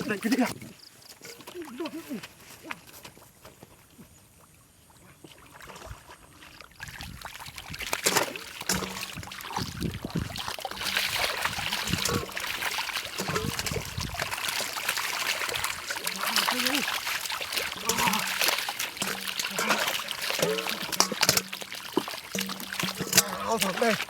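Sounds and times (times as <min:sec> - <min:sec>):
water splashing and trickling: 0:00.0 - 0:03.6, 0:04.3 - 0:24.0.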